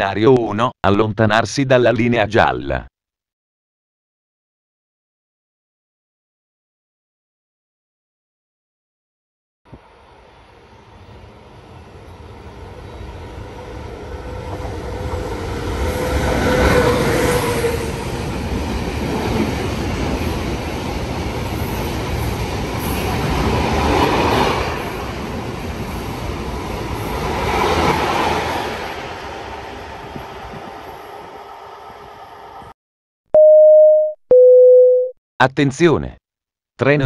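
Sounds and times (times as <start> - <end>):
train wheels rumbling on rails: 10.8 - 32.0.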